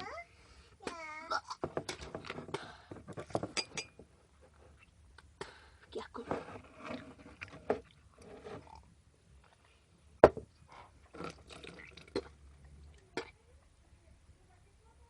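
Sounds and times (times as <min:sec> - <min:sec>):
liquid swallowing sounds: 0:10.7 - 0:13.3.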